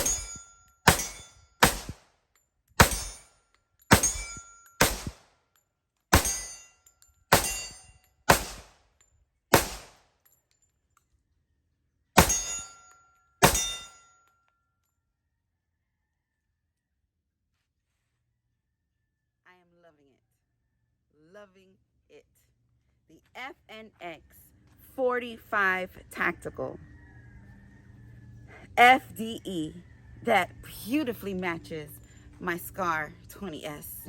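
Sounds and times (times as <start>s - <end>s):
bullets ringing steel target: 0.0s - 2.1s, 2.8s - 5.2s, 6.1s - 8.8s, 9.5s - 10.1s, 12.2s - 14.2s
pistol shots: 0.0s - 2.1s, 2.8s - 3.3s, 3.9s - 5.2s, 6.1s - 6.6s, 7.3s - 8.8s, 9.5s - 10.1s, 12.2s - 12.7s, 13.4s - 13.9s.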